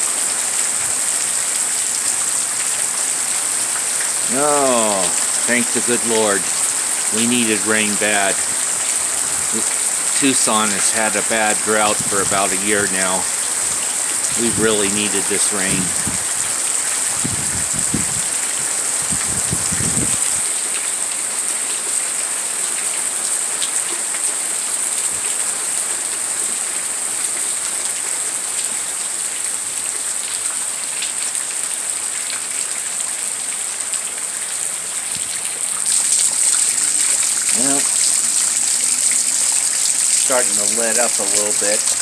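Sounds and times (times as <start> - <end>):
heavy rain falling: 0.0 - 42.0.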